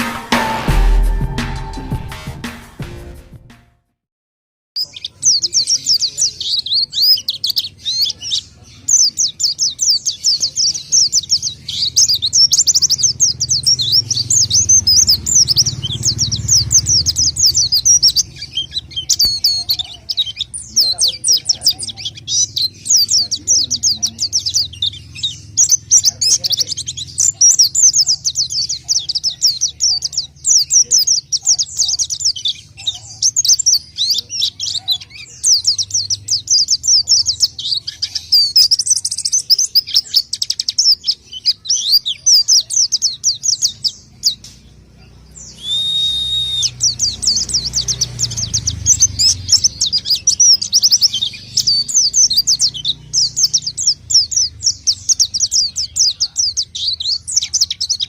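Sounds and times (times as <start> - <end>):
songbird chirping rapidly: 0.0 - 2.2, 4.8 - 58.0
steady whistled bird note: 0.0 - 2.5, 45.5 - 47.0.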